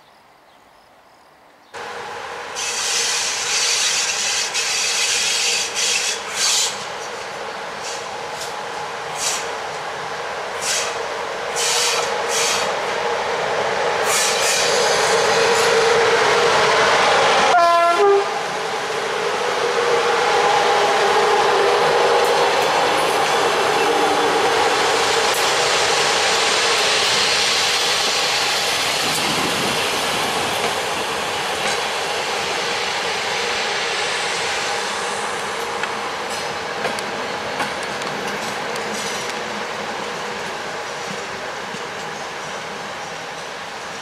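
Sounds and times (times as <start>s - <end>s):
locomotive hum: 1.8s - 43.7s
locomotive horn blast: 17.5s - 18.4s.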